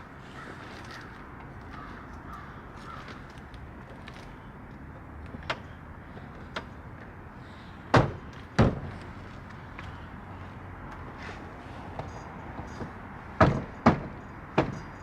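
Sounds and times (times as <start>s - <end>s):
loud ringing knocks: 12.0s - 15.0s.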